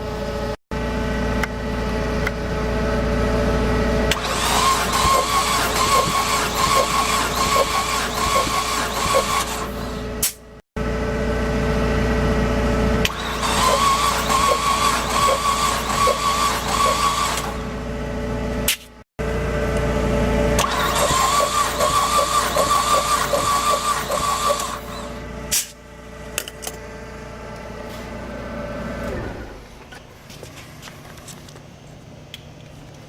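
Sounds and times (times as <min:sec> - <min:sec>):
starter motor cranking engine: 0:04.1 - 0:10.1, 0:13.0 - 0:17.8, 0:20.6 - 0:25.2.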